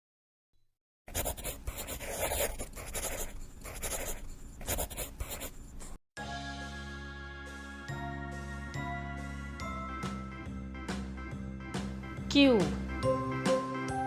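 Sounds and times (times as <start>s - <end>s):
pen scratching on paper: 1.1s - 6.0s.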